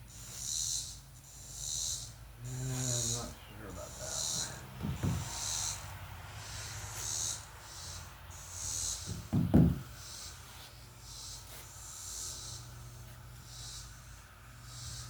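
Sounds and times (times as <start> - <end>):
heavy breathing: 2.5 - 7.5.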